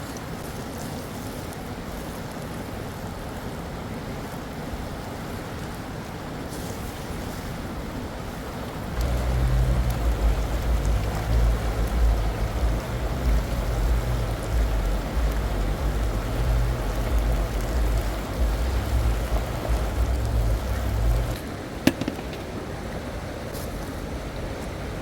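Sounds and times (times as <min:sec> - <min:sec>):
river water rushing: 0:07.5 - 0:25.0
wind buffeting microphone: 0:08.9 - 0:21.4
heavy low rumble: 0:09.0 - 0:21.4.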